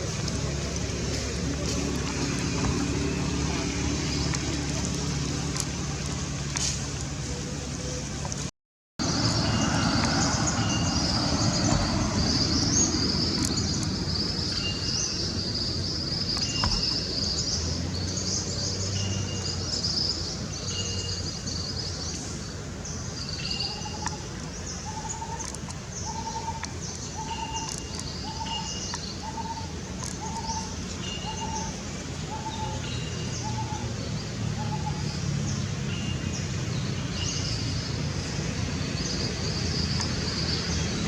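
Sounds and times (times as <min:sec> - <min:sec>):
birds chirping: 0:09.0 - 0:41.0.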